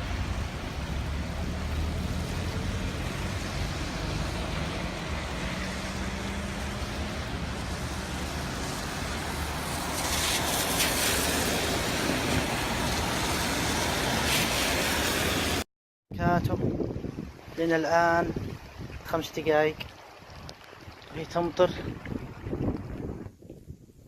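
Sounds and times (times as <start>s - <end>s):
rain falling: 0.0s - 15.6s.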